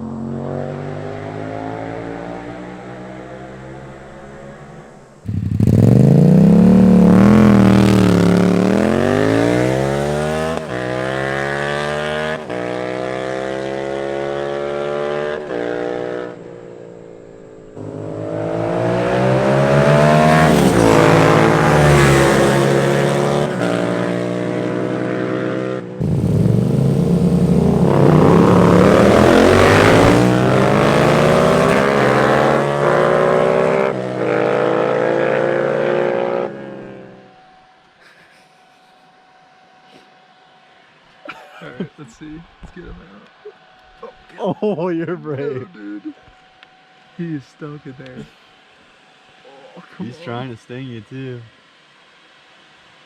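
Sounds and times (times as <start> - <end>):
motorcycle engine accelerating hard: 0.0 - 37.4.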